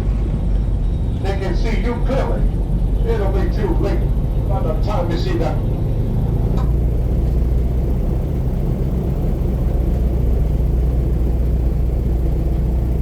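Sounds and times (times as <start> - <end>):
airboat engine and propeller drone: 0.0 - 13.0.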